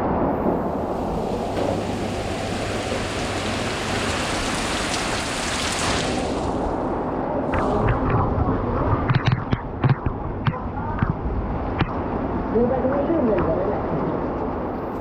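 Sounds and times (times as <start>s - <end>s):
heavy rain pouring: 0.2s - 9.4s
sharp taps: 9.1s - 11.2s.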